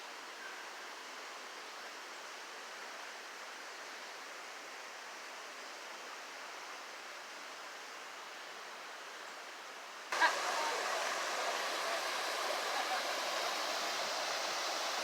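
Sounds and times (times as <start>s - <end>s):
flowing water rushing: 10.1s - 15.0s.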